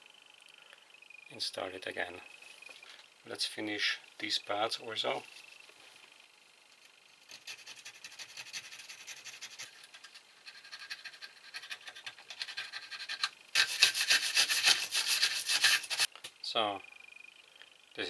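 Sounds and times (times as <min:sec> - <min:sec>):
hand tool scraping metal: 0:07.3 - 0:16.1.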